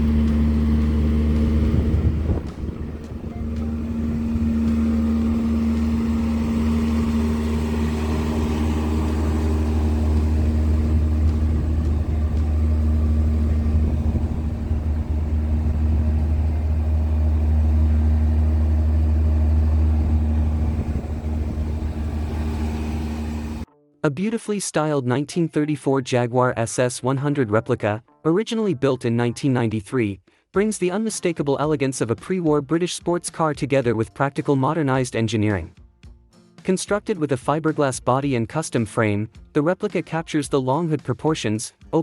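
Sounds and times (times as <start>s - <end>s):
car engine running: 0.0s - 23.7s.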